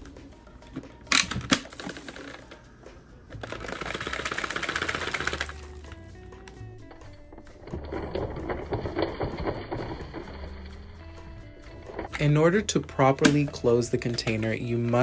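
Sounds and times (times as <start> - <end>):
dirt and debris rattling out: 3.4 - 15.0.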